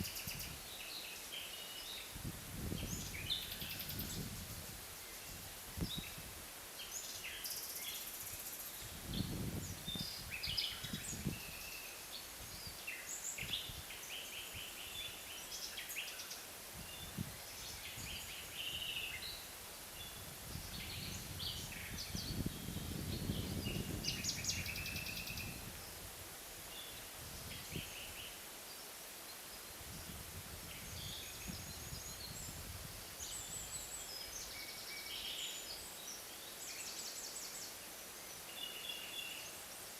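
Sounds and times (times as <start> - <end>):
low rumble of wind: 2.1 - 6.6, 8.8 - 11.7, 16.7 - 28.3, 29.7 - 34.3
small birds chirping and trilling: 6.8 - 26.0, 26.7 - 39.9.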